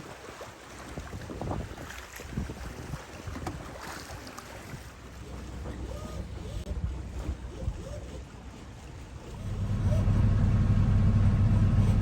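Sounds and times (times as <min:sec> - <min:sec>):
water noise: 0:00.0 - 0:12.0
wind: 0:00.0 - 0:12.0
low diesel engine drone: 0:09.3 - 0:12.0.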